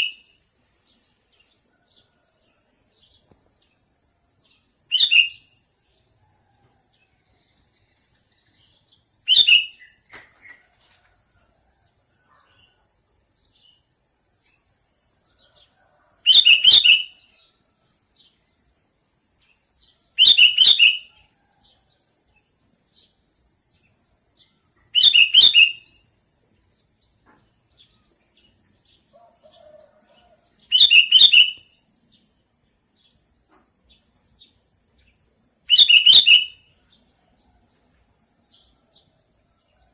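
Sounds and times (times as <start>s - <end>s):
faint bird chirps: 32.9s - 37.7s.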